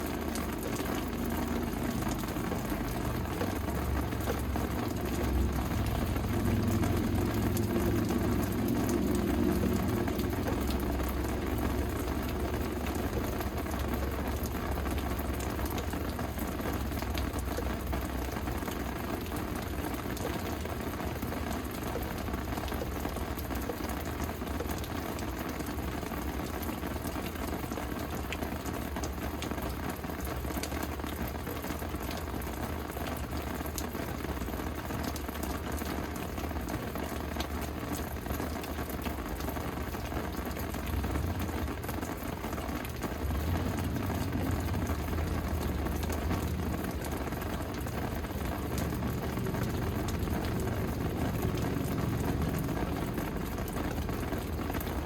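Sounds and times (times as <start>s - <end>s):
steady rain falling: 0.0s - 55.0s
low rumble: 4.8s - 13.5s.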